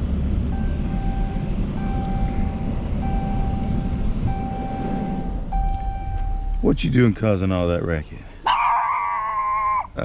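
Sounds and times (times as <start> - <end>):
vehicle engine rumbling: 0.0 - 10.0
electronic warning beeps: 0.6 - 6.6.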